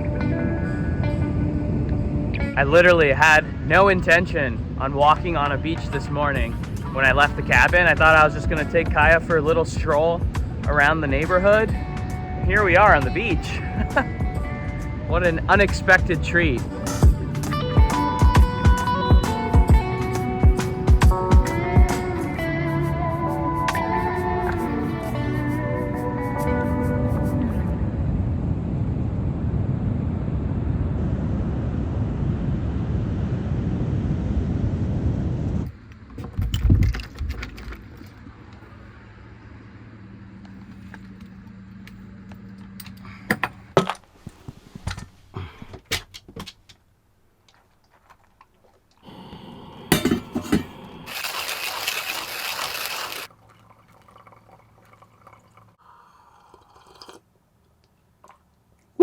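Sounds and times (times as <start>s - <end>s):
glass and dishes clinking: 49.9s - 50.8s
water running into container: 49.9s - 57.3s.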